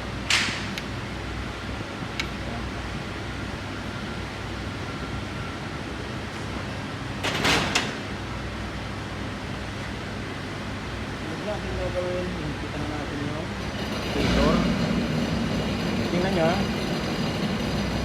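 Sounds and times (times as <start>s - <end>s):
fan humming: 7.9s - 18.0s.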